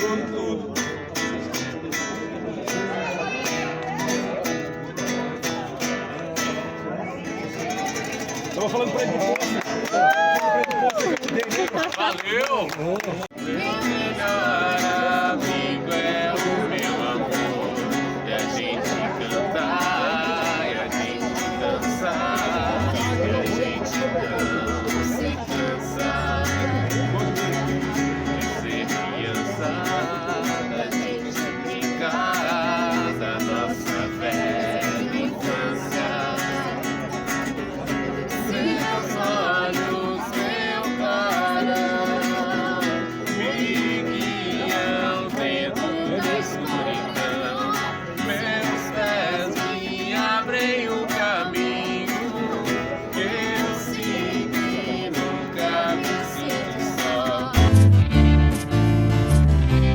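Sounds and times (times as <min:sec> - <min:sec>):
acoustic guitar strumming: 0:00.0 - 0:09.9, 0:13.3 - 0:59.9
person singing: 0:13.4 - 0:36.8, 0:38.4 - 0:59.9.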